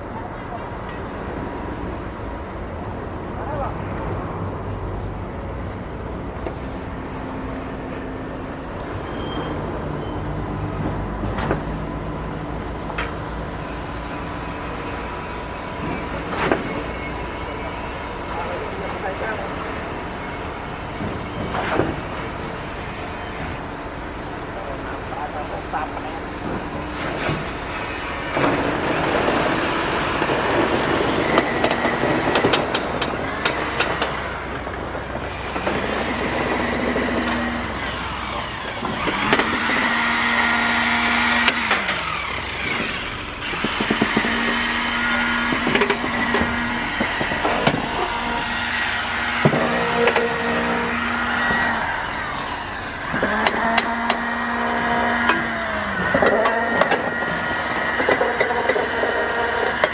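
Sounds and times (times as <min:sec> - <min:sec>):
construction machinery engine: 0:00.0 - 0:59.9
knocks and clanks: 0:10.4 - 0:12.2, 0:15.6 - 0:22.5, 0:26.0 - 0:59.9.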